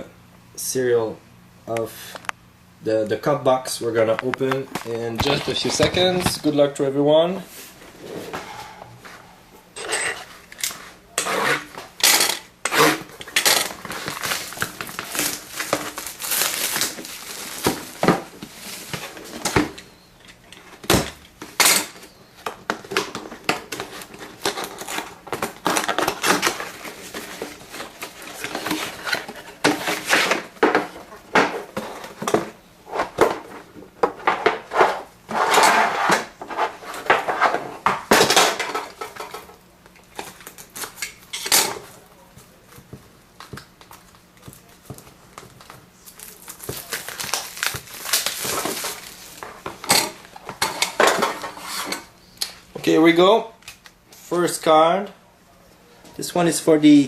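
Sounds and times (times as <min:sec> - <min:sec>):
wrapping rustling and tearing: 0:10.6 - 0:19.9, 0:23.6 - 0:32.2, 0:43.4 - 0:50.4.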